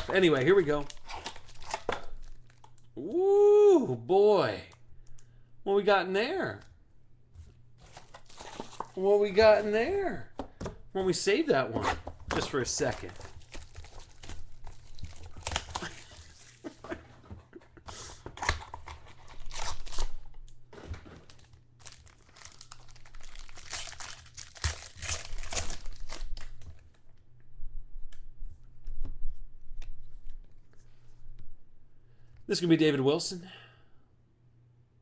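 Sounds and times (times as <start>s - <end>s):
card pack wrapper tearing: 0.0s - 2.8s, 7.8s - 9.0s, 12.4s - 16.7s, 18.4s - 20.3s, 21.2s - 26.8s.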